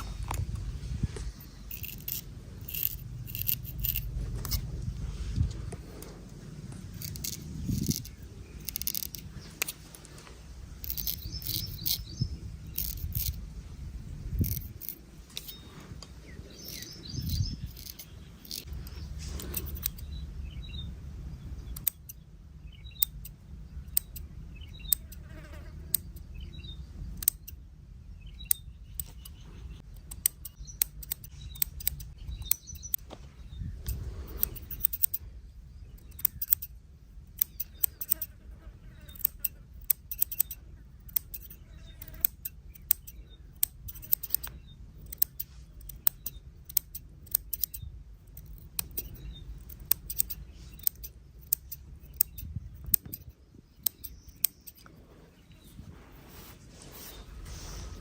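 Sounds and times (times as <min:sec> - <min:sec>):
scissors snipping hair: 0:01.7 - 0:04.7, 0:06.8 - 0:09.8, 0:10.8 - 0:12.1, 0:12.7 - 0:13.4, 0:14.4 - 0:15.6, 0:16.6 - 0:20.0, 0:30.0 - 0:33.0, 0:33.9 - 0:35.2, 0:36.0 - 0:36.8, 0:37.4 - 0:38.4, 0:39.1 - 0:54.9.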